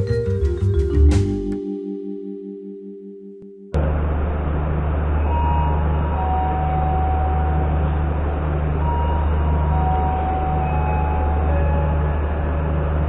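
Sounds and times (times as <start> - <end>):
low diesel train drone: 3.8 - 13.0.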